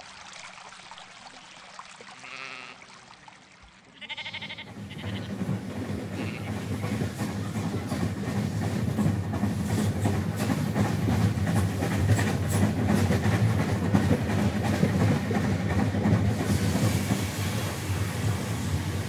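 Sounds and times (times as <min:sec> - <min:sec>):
train rumbling along track: 0:04.0 - 0:19.0
wheels clicking over rail joints: 0:04.4 - 0:19.0.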